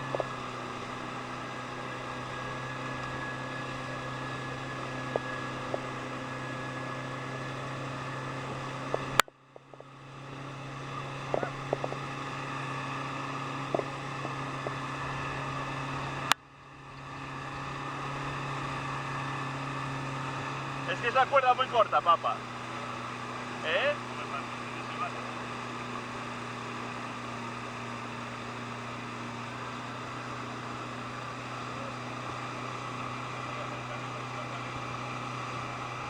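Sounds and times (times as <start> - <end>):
boat engine running: 0.0 - 36.0
sharp clicks: 8.5 - 9.9, 11.3 - 12.1.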